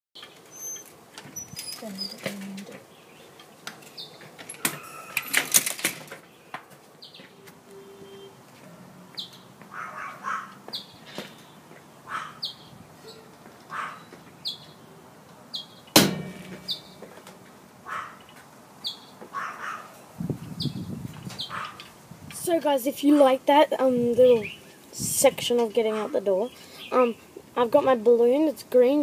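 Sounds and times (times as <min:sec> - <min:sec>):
bird chirping: 0:00.2 - 0:05.3, 0:06.2 - 0:17.0, 0:17.9 - 0:21.9.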